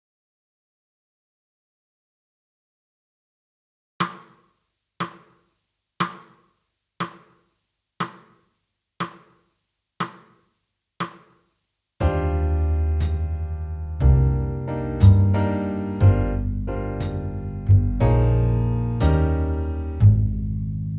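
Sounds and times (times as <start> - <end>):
jazz piano and bass: 12.0 - 20.9.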